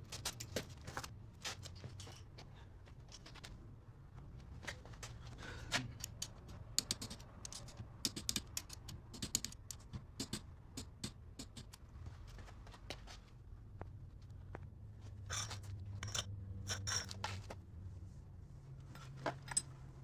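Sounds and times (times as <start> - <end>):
parts and tools clicking: 6.0 - 11.8.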